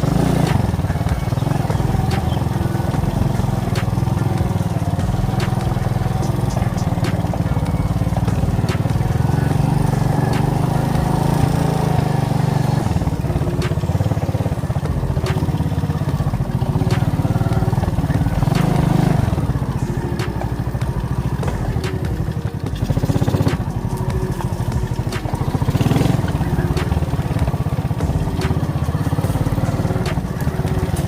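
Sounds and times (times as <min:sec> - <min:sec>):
moped engine running: 0:00.0 - 0:31.0
sharp knocks from bumpy ride: 0:00.0 - 0:31.0.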